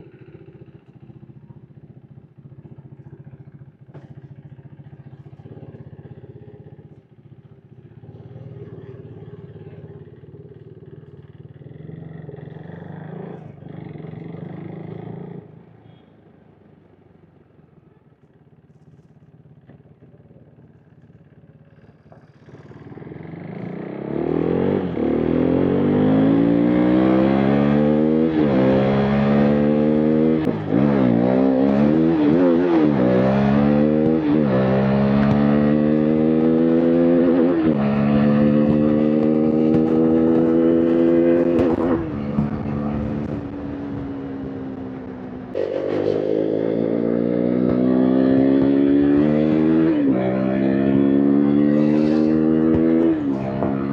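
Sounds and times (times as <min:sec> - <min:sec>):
motorcycle engine accelerating hard: 0:21.8 - 0:53.9.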